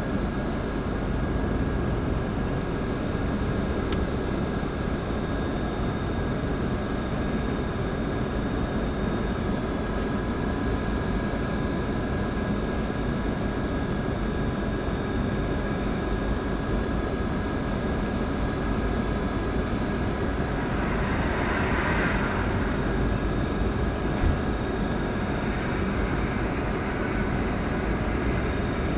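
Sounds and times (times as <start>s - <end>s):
coach engine and road rumble: 17.6s - 28.9s
hissing swell: 18.1s - 28.9s.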